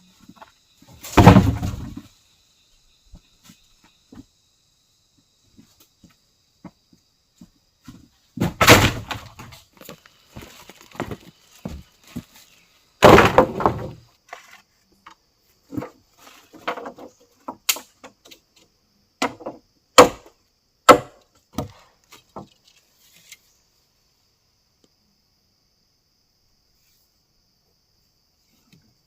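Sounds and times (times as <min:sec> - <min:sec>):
faint high insect buzz: 0:00.0 - 0:13.0, 0:13.8 - 0:29.0
wood being chopped: 0:01.0 - 0:02.0, 0:08.4 - 0:09.6, 0:13.0 - 0:14.0, 0:19.2 - 0:21.8.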